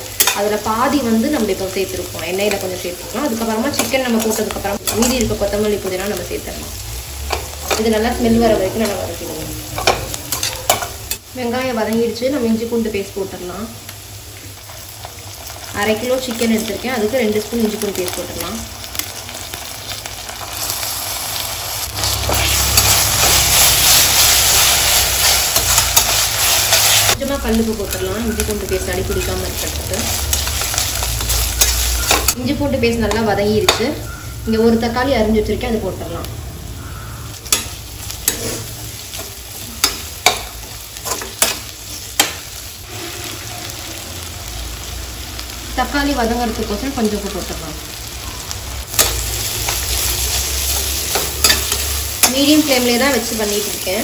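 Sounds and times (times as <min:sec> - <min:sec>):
food sizzling in hot oil: 0:00.0 - 0:54.0
spatula scraping a pan: 0:42.8 - 0:44.0.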